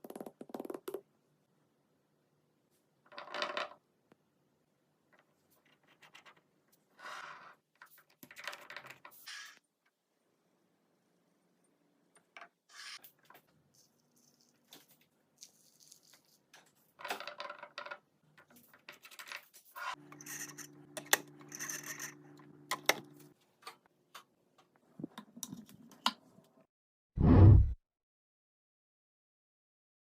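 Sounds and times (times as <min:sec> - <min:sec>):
loud low thump: 0:27.2 - 0:27.8.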